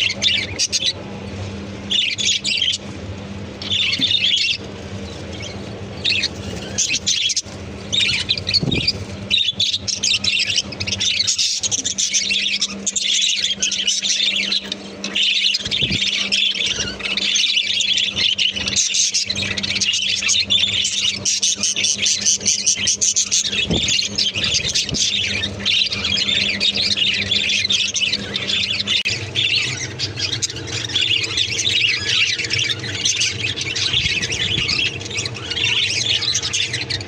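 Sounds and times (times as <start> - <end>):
budgerigars chattering and squawking: 0.0 - 37.0
steady low hum: 0.0 - 37.0.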